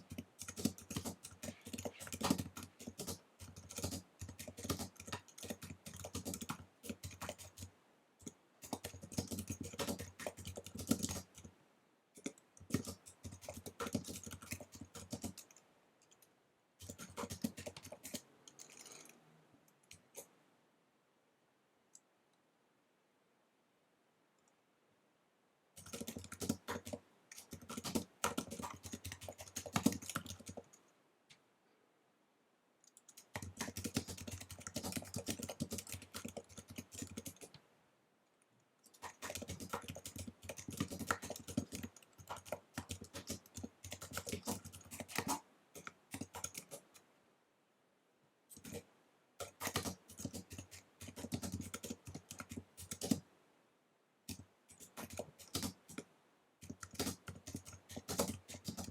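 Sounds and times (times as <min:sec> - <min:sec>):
fast typing on keyboard: 0:00.0 - 0:11.5, 0:12.2 - 0:15.6, 0:16.8 - 0:19.2, 0:25.8 - 0:30.8, 0:32.9 - 0:37.6, 0:38.9 - 0:47.0, 0:48.5 - 0:53.2, 0:54.3 - 0:56.0, 0:56.6 - 0:58.9.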